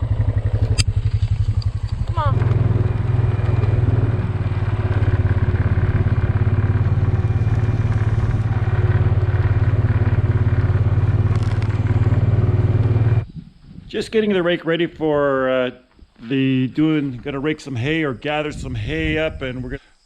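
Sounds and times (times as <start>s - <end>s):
quad engine running: 0.0s - 13.3s.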